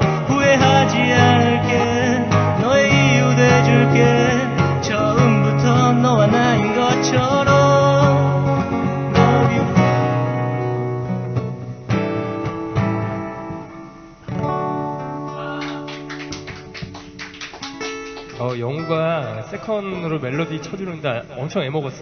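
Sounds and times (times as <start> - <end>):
person singing: 0.0 - 10.3
acoustic guitars playing: 0.0 - 22.0.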